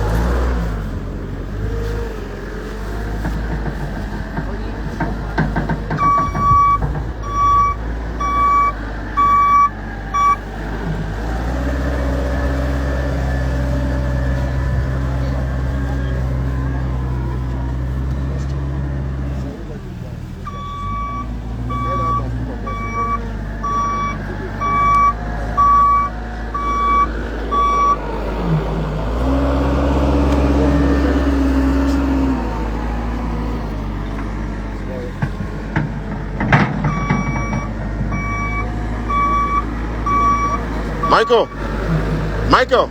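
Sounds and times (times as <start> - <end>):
vehicle engine running: 0.0 - 42.9
reversing alarm beeps: 6.0 - 10.4, 20.5 - 28.0, 36.9 - 41.6.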